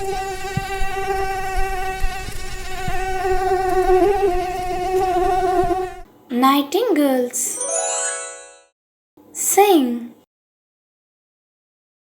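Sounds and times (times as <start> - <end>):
mosquito whine: 0.0 - 6.0.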